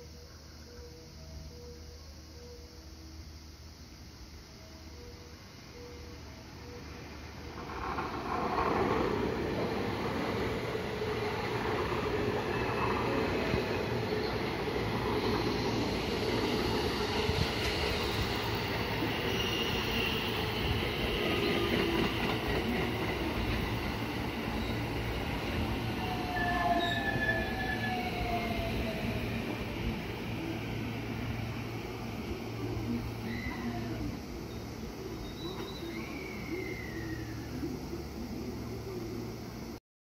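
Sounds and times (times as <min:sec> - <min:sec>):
train wheels rumbling on rail: 0:07.4 - 0:39.0.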